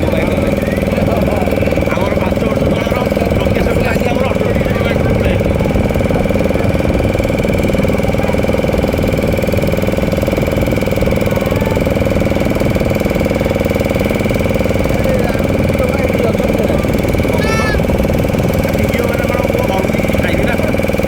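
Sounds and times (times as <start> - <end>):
motor boat engine droning: 0.0 - 21.0.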